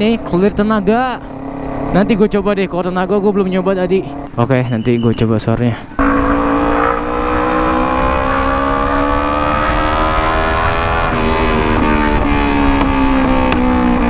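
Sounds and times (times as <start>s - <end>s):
motorcycle engine revving: 0.0s - 4.4s, 6.0s - 14.0s.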